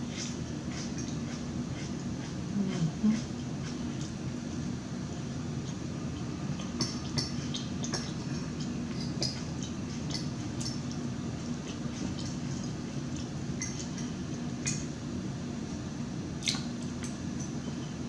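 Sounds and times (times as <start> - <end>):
person chewing food: 0.0 - 4.5
steady low hum: 0.0 - 18.0.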